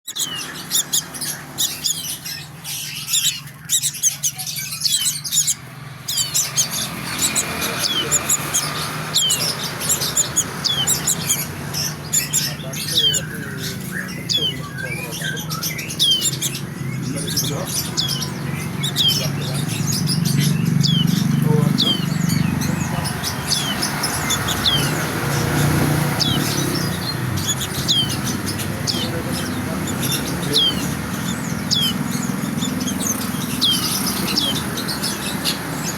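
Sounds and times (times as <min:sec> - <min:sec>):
small bird chirping: 0:00.0 - 0:35.9.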